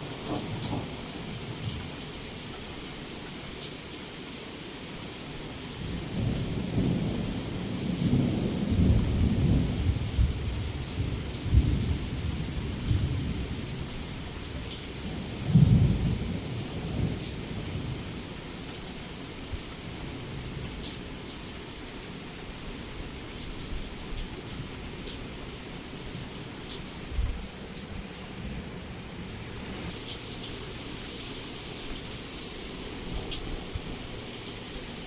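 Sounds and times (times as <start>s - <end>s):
heavy rain hissing: 0.0s - 35.0s
thunder rumbling: 6.2s - 13.6s.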